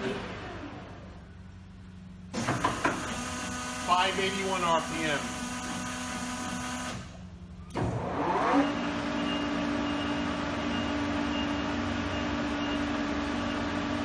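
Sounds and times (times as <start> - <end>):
lathe spindle whirring: 2.4 - 7.2.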